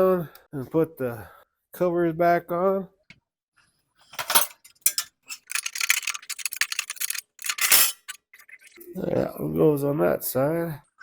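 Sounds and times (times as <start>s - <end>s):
metal parts clinking and scraping: 4.1s - 8.2s.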